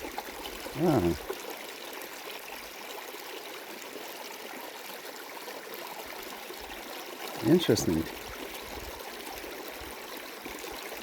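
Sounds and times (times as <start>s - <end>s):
river water rushing: 7.3s - 8.7s.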